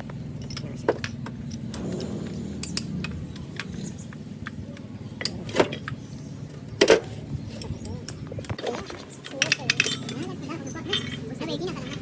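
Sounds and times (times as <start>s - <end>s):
low mechanical hum: 0.0s - 12.0s
tools clinking on engine parts: 0.1s - 12.0s.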